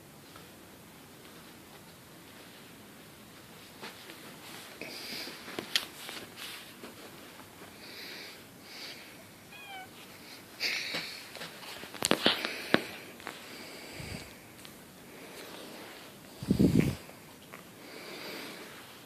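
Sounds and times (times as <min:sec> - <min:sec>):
cats crying: 0:09.5 - 0:10.0.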